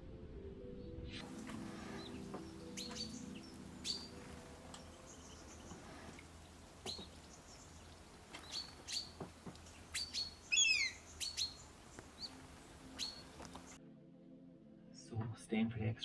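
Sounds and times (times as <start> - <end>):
bird falling notes: 1.2 - 13.8
small birds chirping: 1.2 - 13.8.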